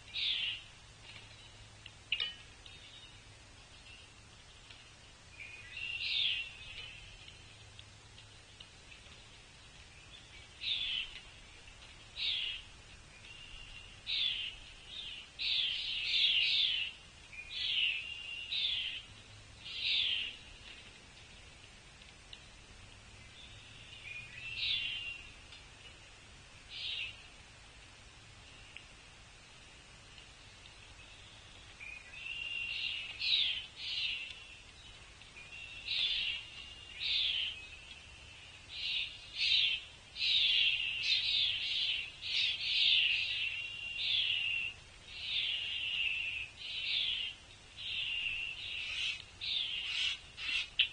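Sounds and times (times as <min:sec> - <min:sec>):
songbird calling high notes: 0:35.4 - 0:50.9.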